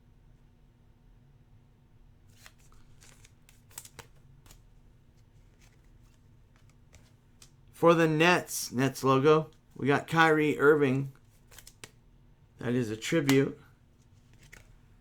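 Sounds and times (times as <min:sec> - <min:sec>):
cards clicking and sliding: 0:02.3 - 0:07.6, 0:09.5 - 0:12.0, 0:12.7 - 0:14.8.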